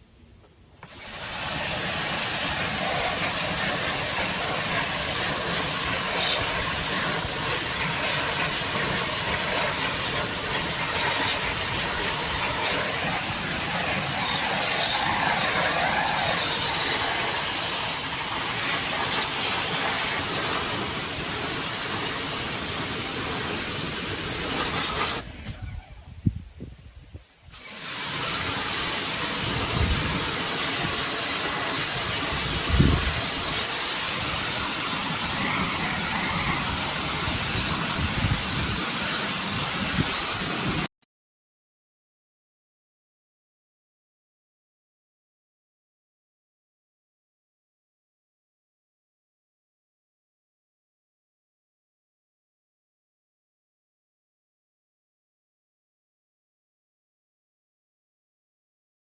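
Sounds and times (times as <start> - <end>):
pressure washer spraying: 0.8 - 25.6, 27.5 - 40.9.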